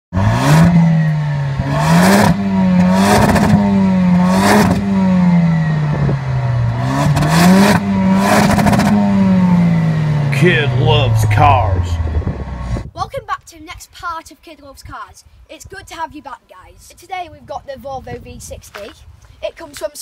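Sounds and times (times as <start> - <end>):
car engine revving: 0.1 - 12.8.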